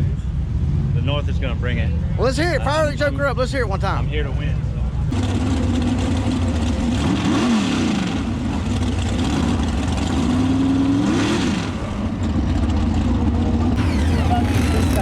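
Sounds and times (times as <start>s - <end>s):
race engine revving: 13.8s - 15.0s.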